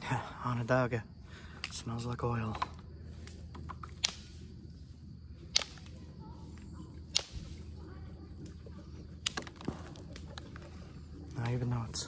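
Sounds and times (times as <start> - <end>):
faint clicks: 5.5 - 6.0, 7.1 - 7.6.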